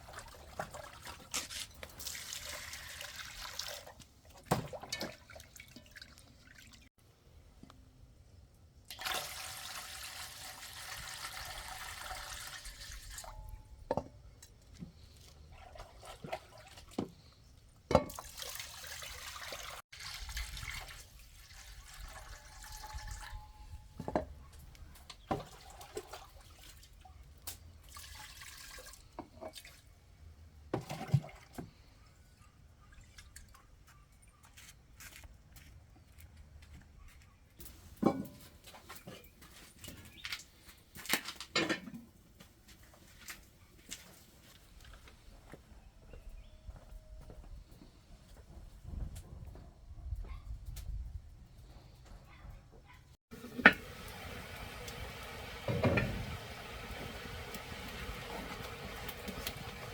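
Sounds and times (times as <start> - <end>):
water running and splashing: 0.0 - 6.9, 8.9 - 13.4, 18.1 - 23.5, 53.3 - 59.9.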